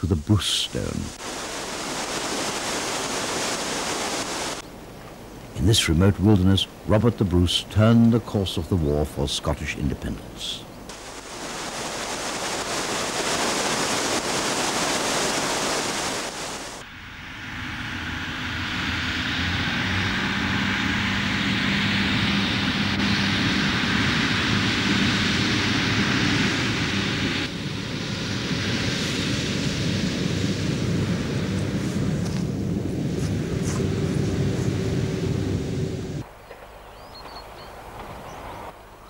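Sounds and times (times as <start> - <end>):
wheel and air rushing noise: 10.9 - 24.0, 25.7 - 39.0
diesel train engine droning: 16.8 - 28.2, 30.8 - 36.3.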